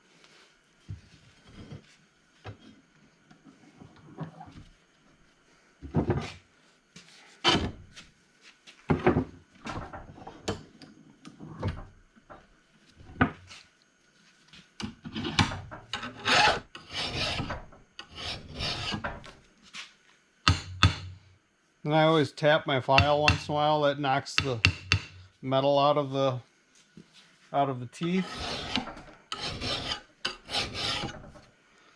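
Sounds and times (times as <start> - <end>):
hand file scraping steel blade: 16.0 - 19.0, 28.1 - 31.2.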